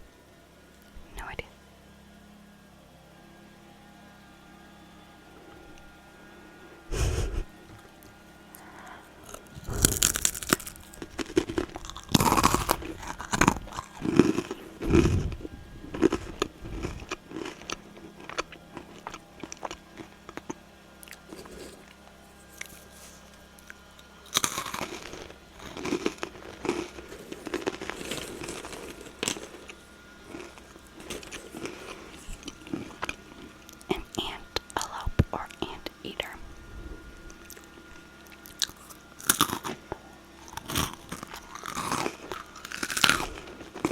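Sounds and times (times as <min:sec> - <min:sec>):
person chewing crunchy snack: 0:08.6 - 0:36.4, 0:37.3 - 0:43.9.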